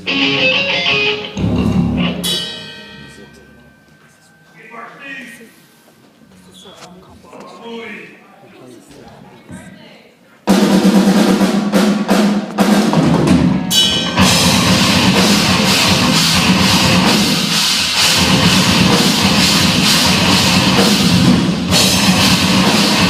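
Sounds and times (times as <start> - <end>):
live band playing: 0.0 - 5.8, 10.5 - 23.0
bass drum and snare: 10.5 - 23.0.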